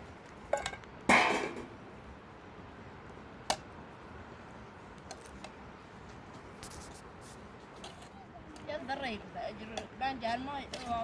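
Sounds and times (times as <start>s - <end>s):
low background hiss: 0.0s - 11.0s.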